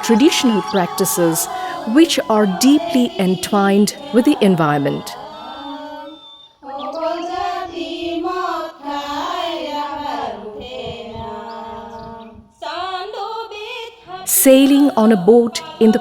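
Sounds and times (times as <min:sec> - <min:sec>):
background music: 0:00.0 - 0:05.2
high singing voice: 0:00.0 - 0:13.3, 0:14.2 - 0:16.0.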